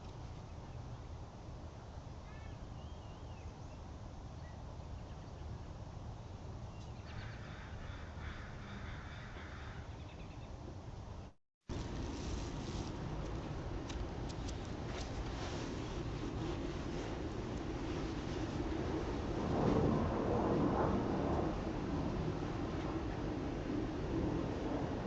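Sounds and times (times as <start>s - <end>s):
low outdoor rumble: 0.0s - 25.0s
faint small bird chirps: 2.2s - 3.8s
crows cawing: 7.1s - 9.9s.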